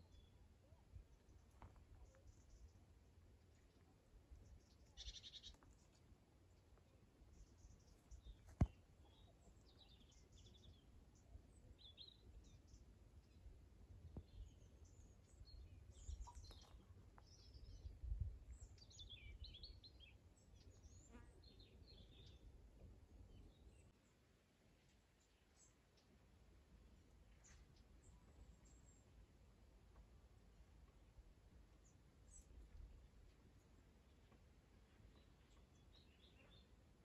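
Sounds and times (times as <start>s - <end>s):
small birds chirping: 0.0s - 22.5s, 31.8s - 36.8s.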